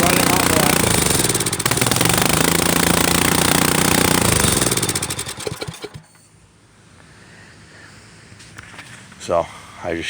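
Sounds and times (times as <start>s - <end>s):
small engine rattling: 0.0s - 6.3s.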